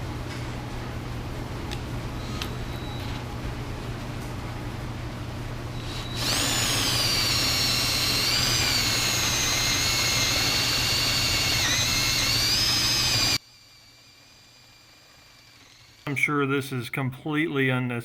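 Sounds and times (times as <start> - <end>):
rotary power tool whining: 2.2 - 3.3, 5.7 - 16.1.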